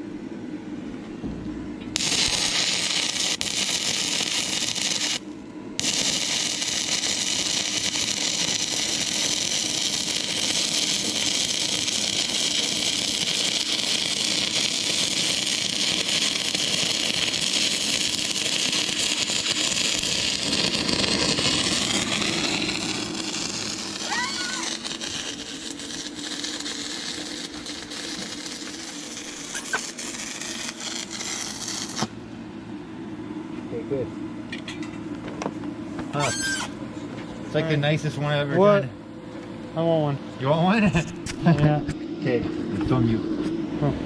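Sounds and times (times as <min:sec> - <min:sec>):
welding arc hissing: 0:01.9 - 0:32.2, 0:36.2 - 0:36.8.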